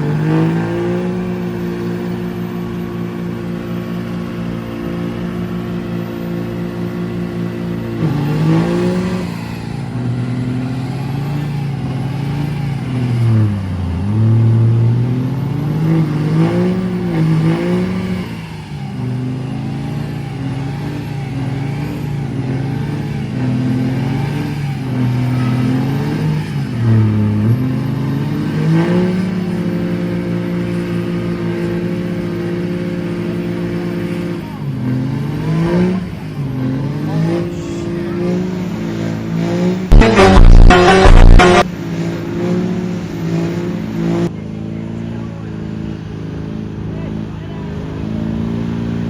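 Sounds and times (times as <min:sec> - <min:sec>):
diesel truck engine revving: 0:00.0 - 0:49.0.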